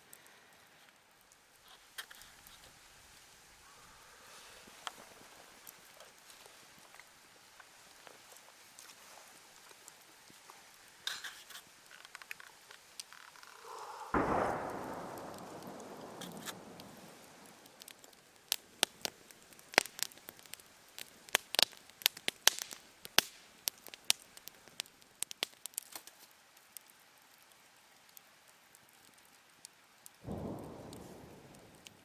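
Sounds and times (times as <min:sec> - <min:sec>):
campfire popping and crackling: 0:00.0 - 0:32.0
sudden hiss: 0:12.9 - 0:18.1.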